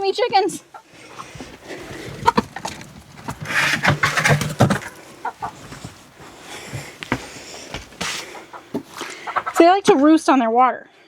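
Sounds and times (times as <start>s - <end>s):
hens clucking: 0.2s - 10.0s
scuffing and rustling: 1.0s - 9.4s.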